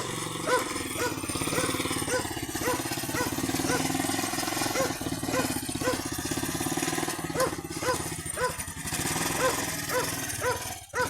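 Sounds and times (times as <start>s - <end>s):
small tractor engine running: 0.0s - 11.0s
dog barking: 0.4s - 4.0s, 4.6s - 6.1s, 7.3s - 8.6s, 9.4s - 11.0s.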